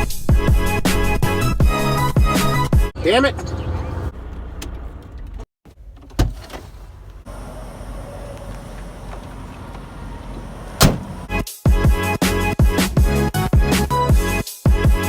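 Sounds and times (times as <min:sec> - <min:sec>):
truck idling: 0:06.6 - 0:11.4
thumps: 0:09.1 - 0:11.3.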